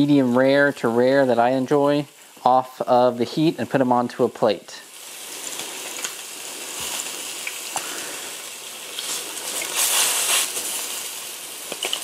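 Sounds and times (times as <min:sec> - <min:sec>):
fish searing in a pan: 0:00.0 - 0:12.0.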